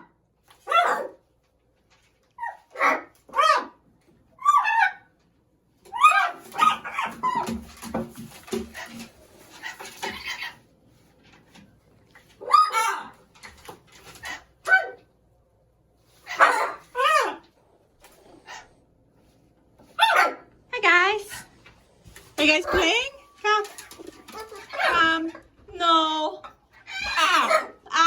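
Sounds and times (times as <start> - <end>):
birds scuffling and scratching: 5.7 - 14.8, 15.9 - 20.3, 21.3 - 25.8
macaws calling: 26.8 - 27.7.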